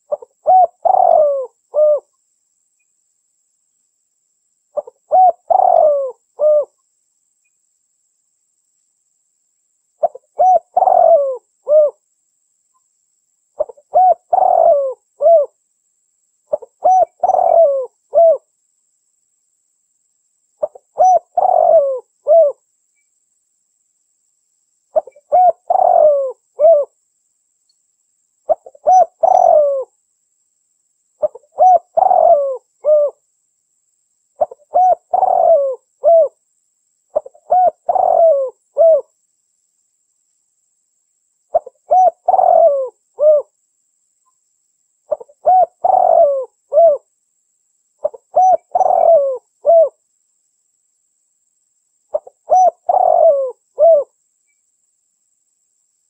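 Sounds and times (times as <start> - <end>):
dove cooing: 0.0 - 2.1, 4.8 - 6.8, 10.0 - 12.0, 13.6 - 15.6, 16.5 - 18.5, 20.6 - 22.6, 25.0 - 26.9, 28.5 - 29.9, 31.2 - 33.2, 34.4 - 36.4, 37.1 - 39.1, 41.5 - 43.5, 45.1 - 47.1, 48.0 - 50.0, 52.1 - 54.2.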